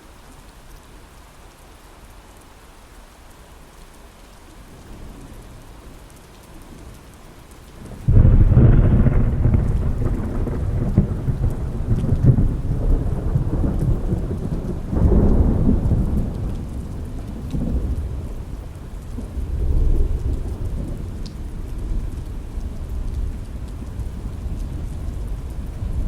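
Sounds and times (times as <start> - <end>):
heavy rain on window: 0.0 - 26.0
thunder rumbling: 7.9 - 26.0.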